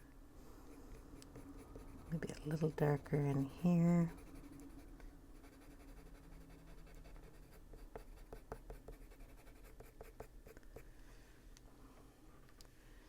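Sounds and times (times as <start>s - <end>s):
pencil scratching on paper: 0.9s - 10.6s.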